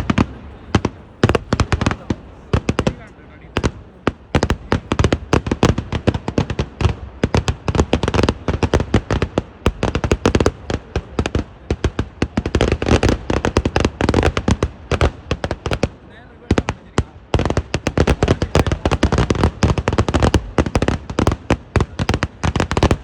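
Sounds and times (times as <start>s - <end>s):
firework explosions: 0.0s - 23.0s.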